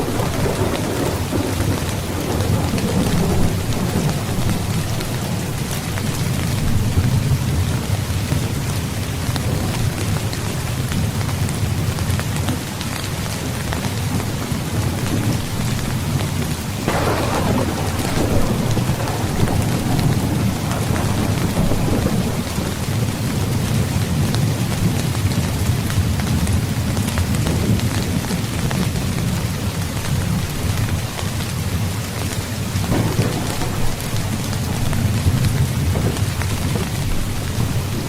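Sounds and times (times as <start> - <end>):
near thunderclap: 0.0 - 7.6, 14.8 - 25.1, 32.8 - 38.0
low rolling thunder rumble: 0.0 - 8.6, 14.0 - 31.1, 32.2 - 38.0
heavy rain falling: 0.0 - 38.0.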